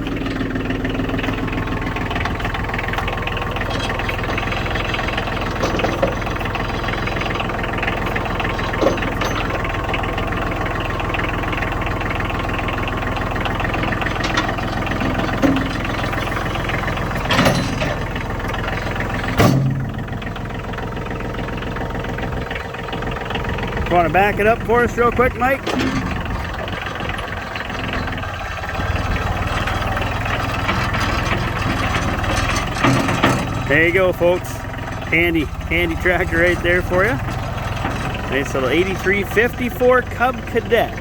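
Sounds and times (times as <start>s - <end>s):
diesel engine idling: 0.0s - 41.0s.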